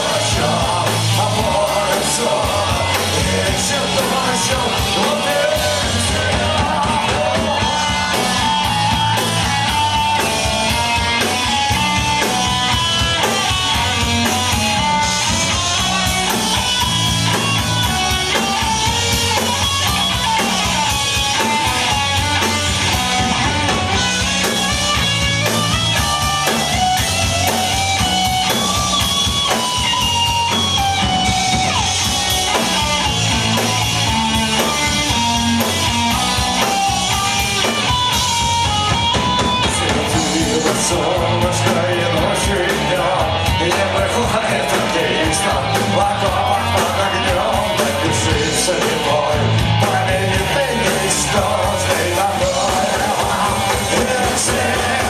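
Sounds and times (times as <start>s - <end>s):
electric guitar melody: 0.0s - 55.0s
live rock band playing: 0.0s - 55.0s.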